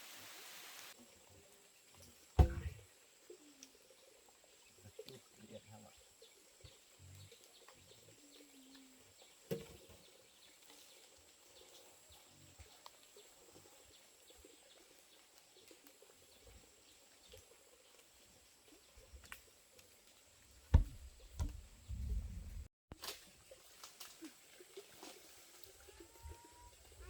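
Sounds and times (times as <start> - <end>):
sharp knock: 2.4 - 2.8, 20.7 - 21.5.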